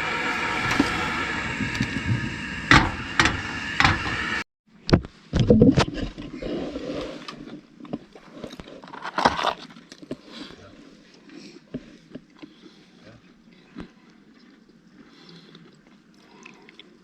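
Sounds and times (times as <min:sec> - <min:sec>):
vehicle engine droning: 0:00.0 - 0:04.5
thumps and scraping: 0:00.0 - 0:06.8.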